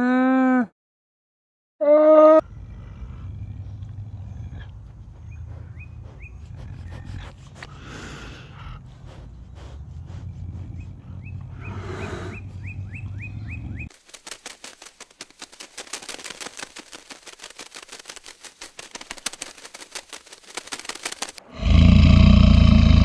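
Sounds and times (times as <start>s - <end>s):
rapid fluttering clicks: 13.9s - 21.4s.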